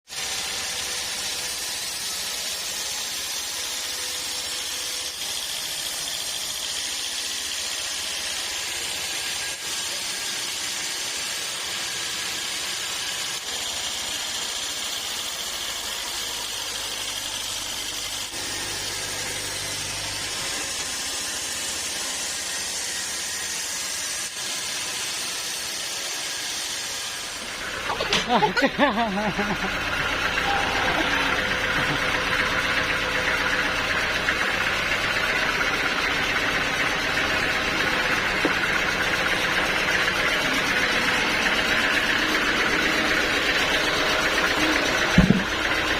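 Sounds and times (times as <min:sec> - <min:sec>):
sawmill machinery hissing: 0:00.1 - 0:45.9
low hum: 0:27.4 - 0:39.3.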